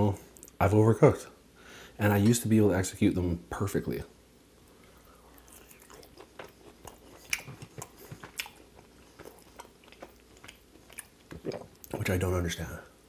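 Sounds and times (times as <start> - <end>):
person chewing wet mouth clicks: 5.4 - 11.9.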